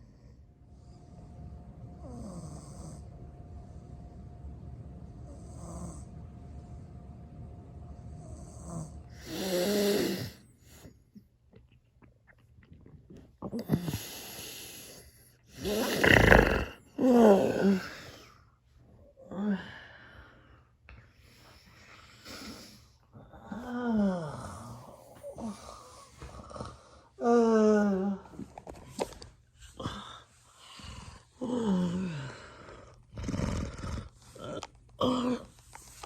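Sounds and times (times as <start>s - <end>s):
person snoring: 8.6s - 10.4s, 13.5s - 18.3s, 29.8s - 35.5s.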